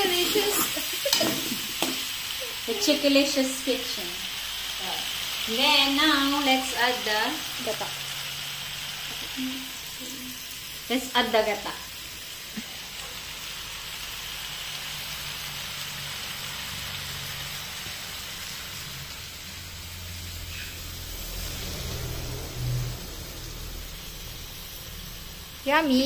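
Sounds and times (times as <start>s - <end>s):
food sizzling in a wok: 0.0s - 26.0s
low hum: 19.8s - 25.6s.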